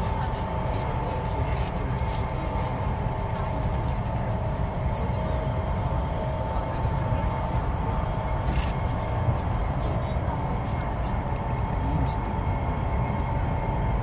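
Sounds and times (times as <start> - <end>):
train rumble inside carriage: 0.0 - 14.0.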